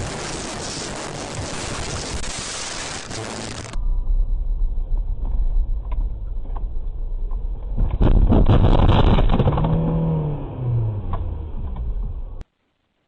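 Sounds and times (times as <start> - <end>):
loud noisy burst: 0.0 - 3.8, 7.9 - 10.1
car engine and road noise: 0.0 - 12.5.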